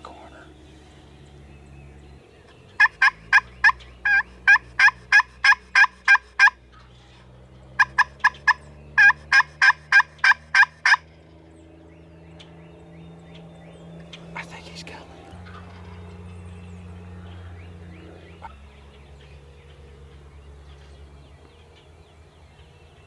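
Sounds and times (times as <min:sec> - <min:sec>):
turkey call yelps: 0:02.8 - 0:06.6, 0:07.8 - 0:11.0.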